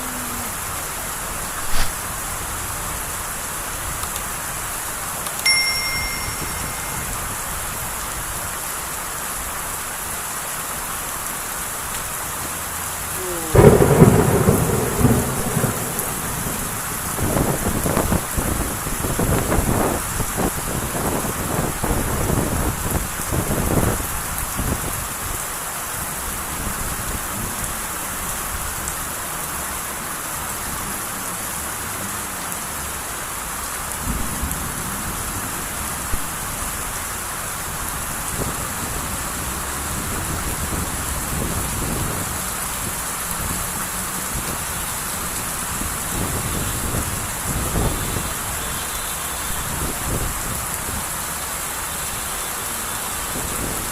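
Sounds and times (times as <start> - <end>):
heavy rain hissing: 0.0 - 53.9
low thunder rumbling: 13.2 - 23.9.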